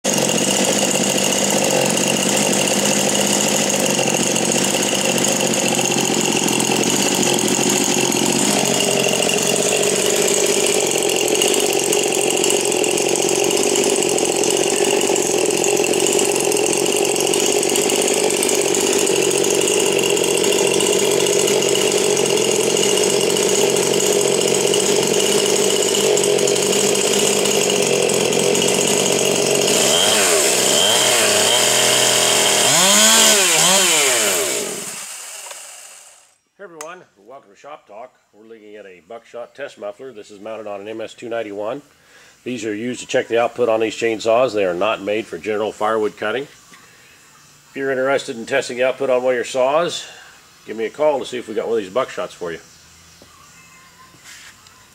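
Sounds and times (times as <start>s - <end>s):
chainsaw running at high revs: 0.0s - 36.4s.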